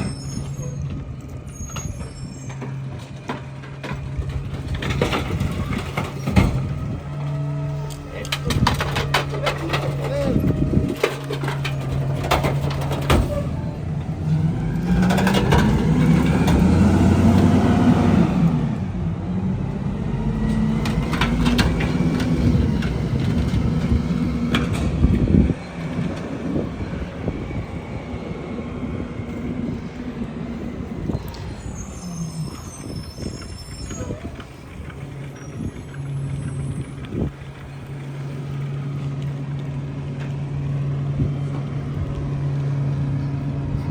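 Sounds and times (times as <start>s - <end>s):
garbage truck engine revving: 0.0s - 43.9s
trash being crushed: 8.3s - 13.7s.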